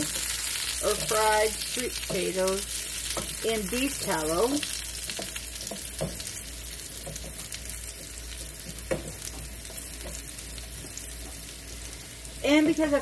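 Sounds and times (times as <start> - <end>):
food sizzling in a skillet: 0.0 - 13.0
wooden spoon knocking pan: 5.1 - 6.3, 7.0 - 10.3.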